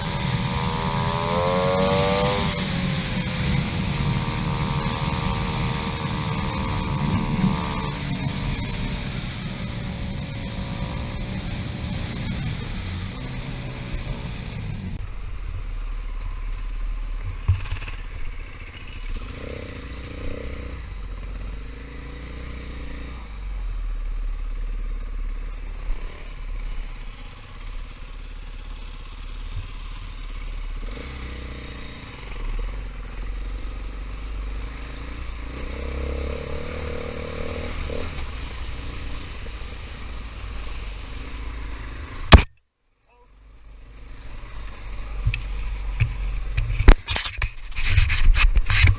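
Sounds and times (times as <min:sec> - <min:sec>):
dirt bike engine revving: 0:00.0 - 0:15.0, 0:30.8 - 0:42.5
sharp very loud crack: 0:00.0 - 0:15.0, 0:42.3 - 0:42.5.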